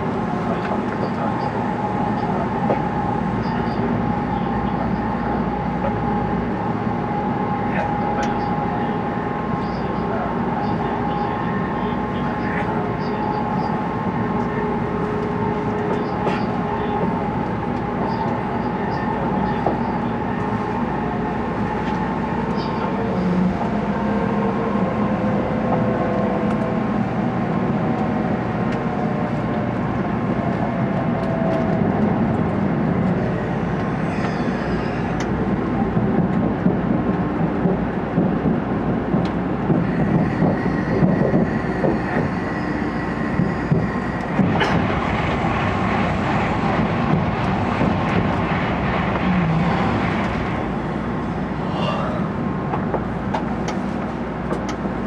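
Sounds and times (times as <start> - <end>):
train wheels and air rumbling: 0.0 - 55.0.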